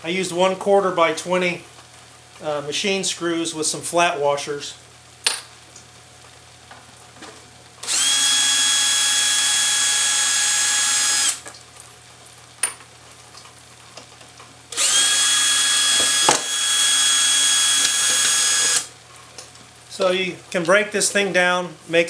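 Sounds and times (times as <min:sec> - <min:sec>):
power drill whining: 0:07.8 - 0:11.4, 0:14.7 - 0:18.9.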